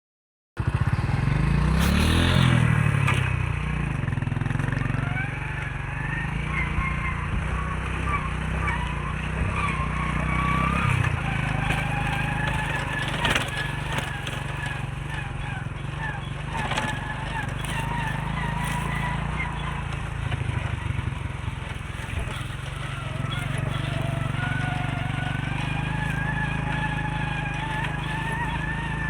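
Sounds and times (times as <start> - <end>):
engine revving: 0.6 - 29.0.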